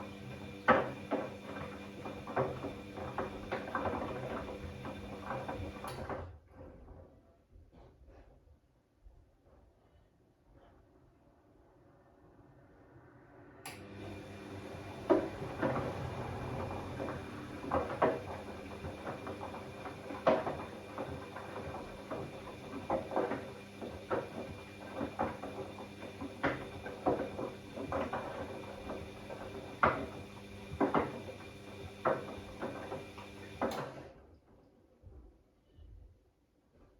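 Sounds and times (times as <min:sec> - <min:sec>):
washing machine motor hum: 0:00.0 - 0:06.2, 0:13.7 - 0:34.1.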